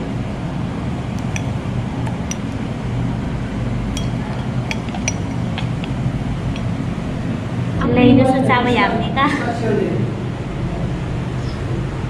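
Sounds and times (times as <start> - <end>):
spoon clicking on dish: 1.2 - 2.6, 4.0 - 6.7.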